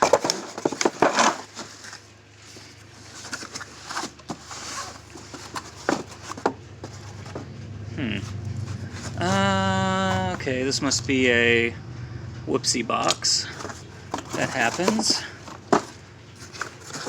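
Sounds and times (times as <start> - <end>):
packing material rustling: 0.0 - 7.4, 8.2 - 10.5, 13.4 - 17.0.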